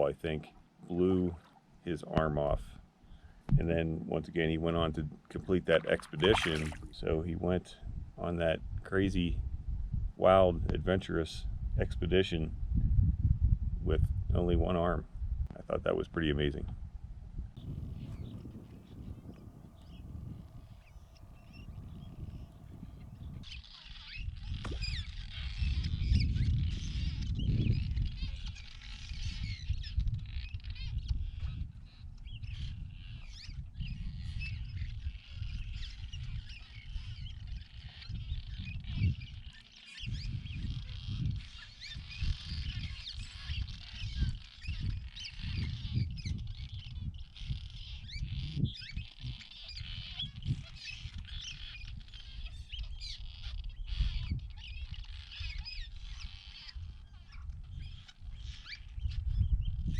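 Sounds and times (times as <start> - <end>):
swallows chirping: 5.9 - 6.8, 17.6 - 23.6
low rumble: 17.6 - 23.5.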